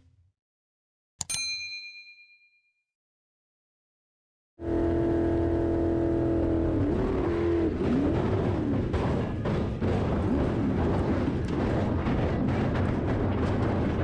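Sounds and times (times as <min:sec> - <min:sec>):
engine running: 0:04.6 - 0:14.0
low rumble: 0:05.4 - 0:14.0.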